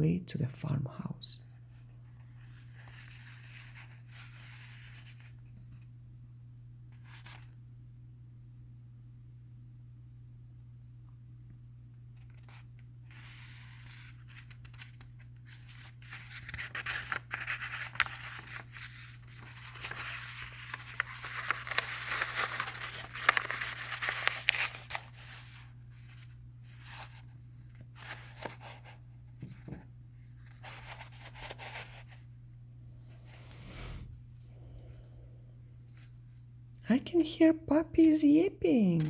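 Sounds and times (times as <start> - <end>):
steady low hum: 0.0 - 39.0
paper scratching and rustling: 2.2 - 5.8, 6.9 - 7.6, 12.2 - 29.7, 30.3 - 32.2.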